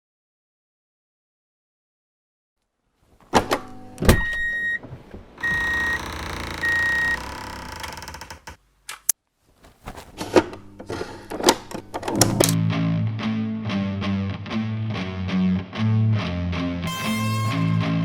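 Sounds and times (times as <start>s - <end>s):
short electronic beeps: 5.4s - 7.2s
sharp clicks and knocks: 10.1s - 12.6s.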